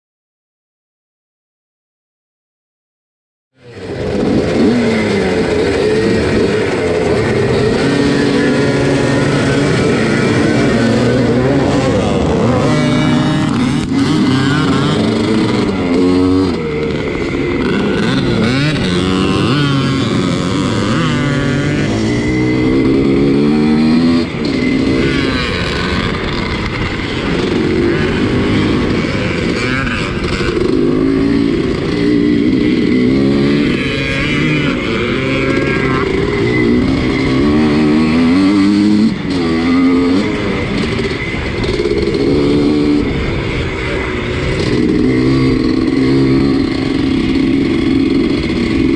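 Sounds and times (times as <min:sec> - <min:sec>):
motocross bike revving: 0:03.6 - 0:48.9
other race bike engines: 0:03.6 - 0:48.9.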